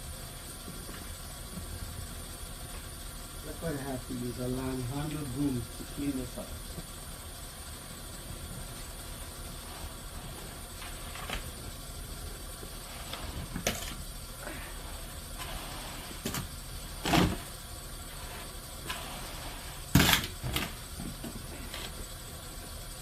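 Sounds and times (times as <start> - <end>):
steady low rumble: 0.0 - 23.0
broom sweeping snow: 9.2 - 13.6, 14.6 - 19.9.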